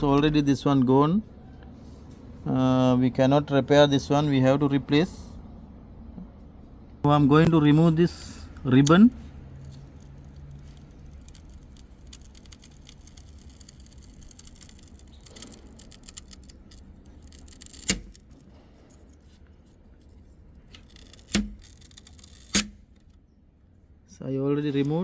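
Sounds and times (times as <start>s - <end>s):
faint scratching and clicking: 8.8s - 23.2s.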